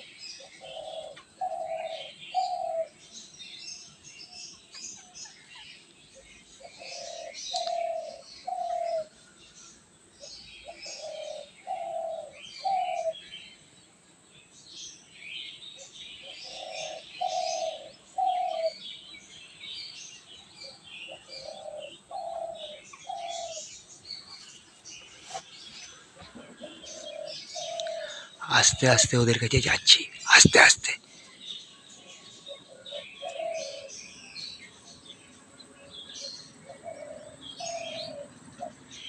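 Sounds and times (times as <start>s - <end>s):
dove cooing: 0.0s - 3.0s, 6.6s - 9.2s, 10.6s - 13.2s, 16.2s - 18.8s, 20.7s - 23.8s, 26.2s - 29.1s, 32.4s - 34.1s, 35.8s - 39.0s
small birds chirping: 0.0s - 39.0s.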